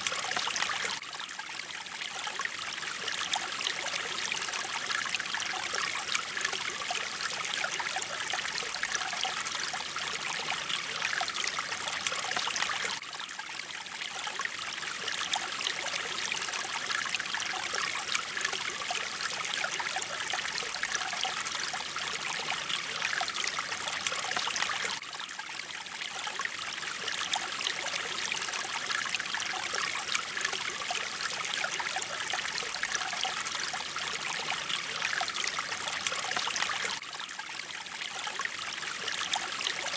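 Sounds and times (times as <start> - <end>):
stream water flowing and splashing: 0.0 - 39.9.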